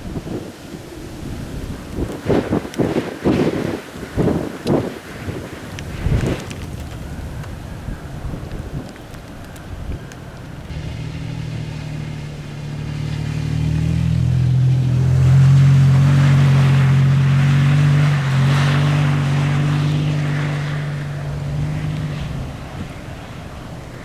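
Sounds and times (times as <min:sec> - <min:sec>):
tyre and wind noise: 0:00.0 - 0:24.0
vehicle engine running: 0:10.4 - 0:24.0.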